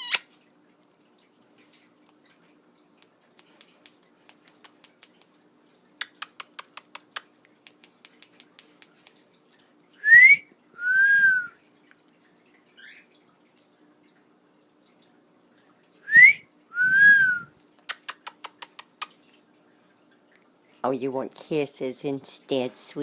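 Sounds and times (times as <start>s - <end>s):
wolf whistle: 10.0s - 11.6s, 16.1s - 17.5s.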